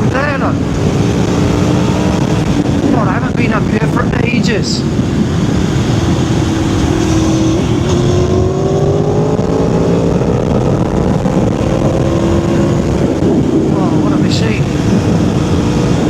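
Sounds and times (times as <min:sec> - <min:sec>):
motorcycle engine revving: 0:00.0 - 0:16.0
wind and road noise: 0:00.0 - 0:16.0.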